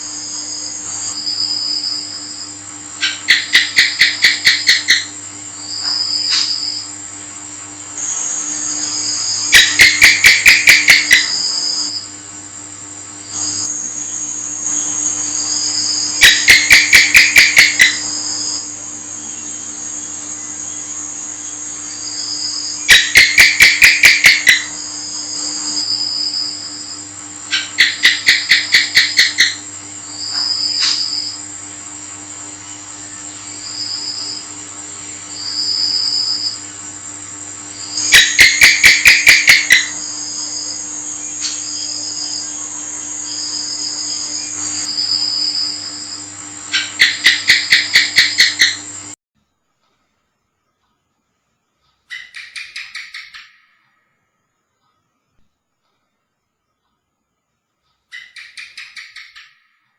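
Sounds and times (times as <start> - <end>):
high-pitched insect trills: 0.0 - 7.0, 7.9 - 12.2, 13.2 - 49.1
gecko rapid chirps: 3.0 - 5.1, 8.1 - 11.9, 14.6 - 18.5, 22.8 - 24.7, 27.5 - 29.6, 37.9 - 40.6, 46.7 - 48.8, 52.1 - 53.8, 58.1 - 59.7.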